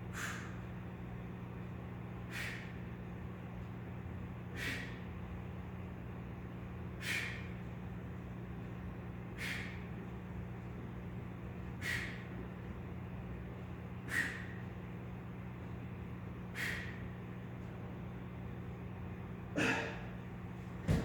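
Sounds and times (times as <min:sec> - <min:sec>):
man exhaling forcefully: 0:00.1 - 0:00.6, 0:02.3 - 0:02.8, 0:04.5 - 0:05.0, 0:07.0 - 0:07.5, 0:09.4 - 0:09.8, 0:11.8 - 0:12.2, 0:14.1 - 0:14.6, 0:16.6 - 0:17.0, 0:19.6 - 0:20.1.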